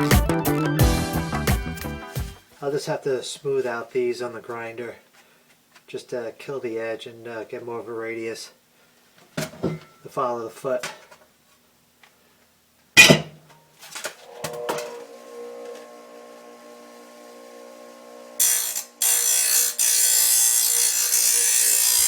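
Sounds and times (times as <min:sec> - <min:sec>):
grinder motor humming: 0:14.3 - 0:22.0.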